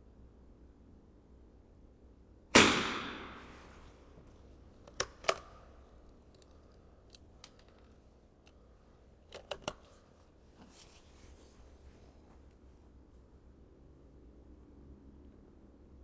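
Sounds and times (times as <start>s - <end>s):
metallic rifle clicks: 4.8s - 8.6s.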